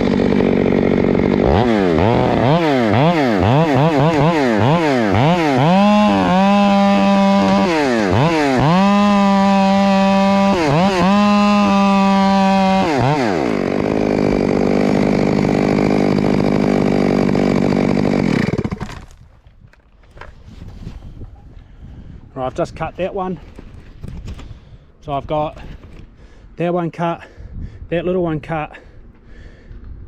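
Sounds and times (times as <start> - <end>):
chainsaw revving and cutting: 0.0 - 19.1.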